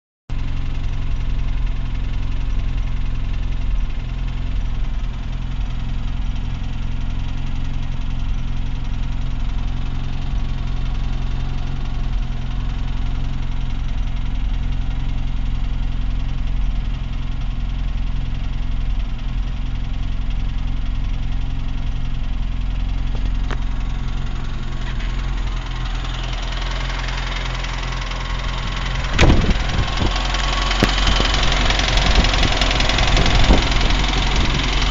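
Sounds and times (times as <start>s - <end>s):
engine idling with a knock: 0.5s - 34.9s
sharp loud hit: 28.4s - 34.0s.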